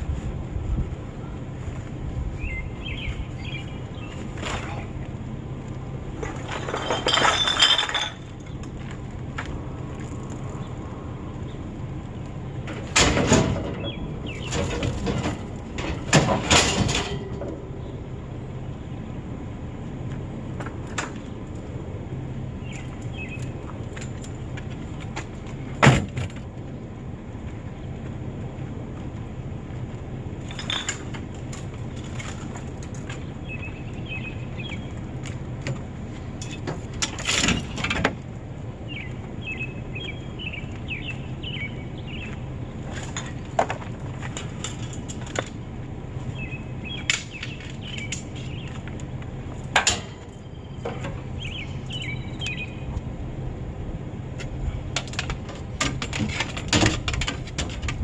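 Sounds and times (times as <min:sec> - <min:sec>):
vehicle rumble: 0:00.0 - 0:58.0
birds chirping: 0:00.6 - 0:06.9, 0:08.2 - 0:12.8, 0:13.6 - 0:16.0, 0:17.6 - 0:20.4, 0:22.1 - 0:25.8, 0:31.7 - 0:36.6, 0:38.4 - 0:43.6, 0:45.8 - 0:53.1
knocks and rattles: 0:06.2 - 0:08.8, 0:12.6 - 0:17.7, 0:54.9 - 0:58.0.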